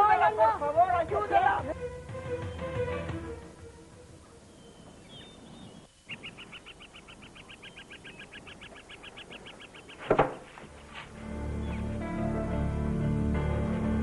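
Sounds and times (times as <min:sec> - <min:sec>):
bird trilling: 0:04.4 - 0:10.2.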